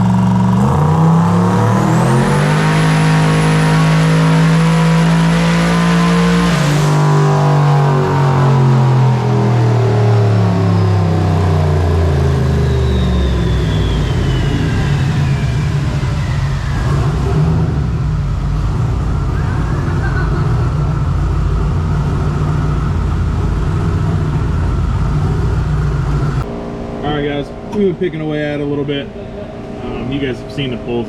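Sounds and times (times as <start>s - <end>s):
car engine revs falling to idle: 0.0s - 31.0s
turbo whine: 0.0s - 31.0s.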